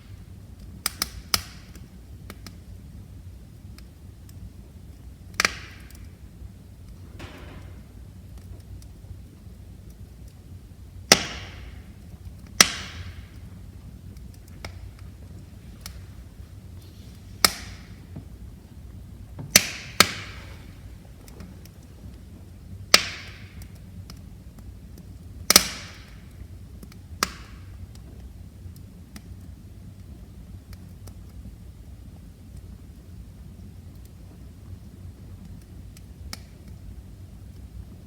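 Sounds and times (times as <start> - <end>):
wood fire crackling: 0.0 - 38.0
sharp fire pops: 0.1 - 2.7, 3.6 - 29.3.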